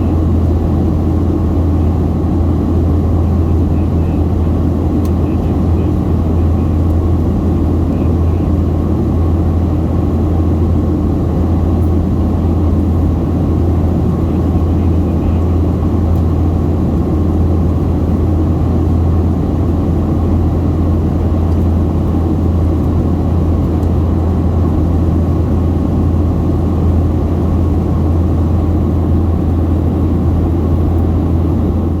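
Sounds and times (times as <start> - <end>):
airflow rushing over cabin: 0.0 - 32.0
low jet engine hum: 0.0 - 32.0.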